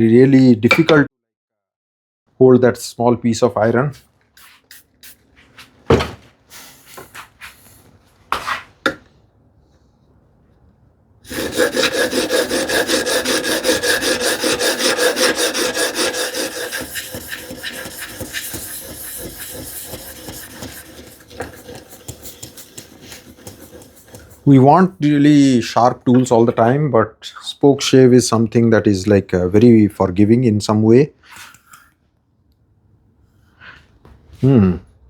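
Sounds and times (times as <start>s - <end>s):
blade rubbing on sharpening stone: 11.3s - 24.4s.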